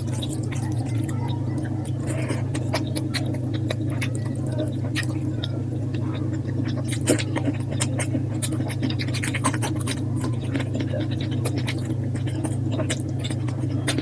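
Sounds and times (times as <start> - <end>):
sped-up mouth smacks and chewing: 0.0 - 14.0
steady low hum: 0.0 - 14.0.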